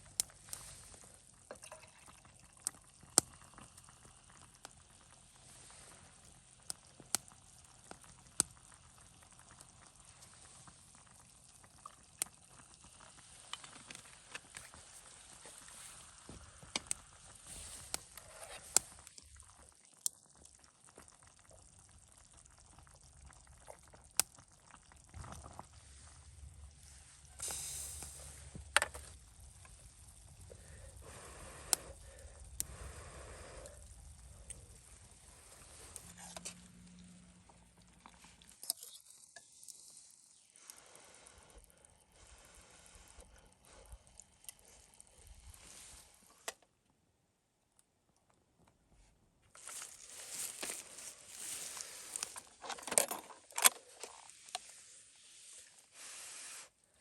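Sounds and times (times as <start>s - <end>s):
campfire crackling and popping: 0.0s - 38.7s
food sizzling over fire: 0.0s - 46.4s, 49.6s - 52.6s, 54.2s - 56.7s.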